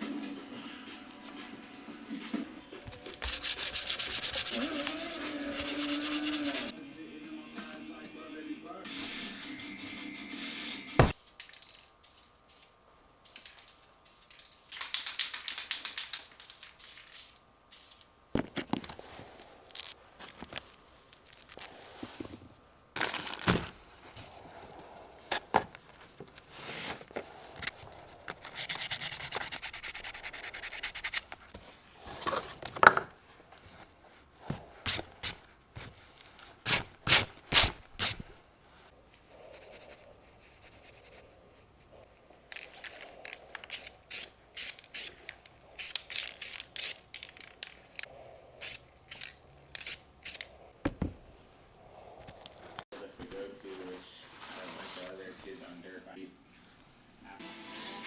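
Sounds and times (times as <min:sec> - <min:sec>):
hand scraping and sanding: 0:02.9 - 0:06.7, 0:26.5 - 0:31.8, 0:53.7 - 0:55.5.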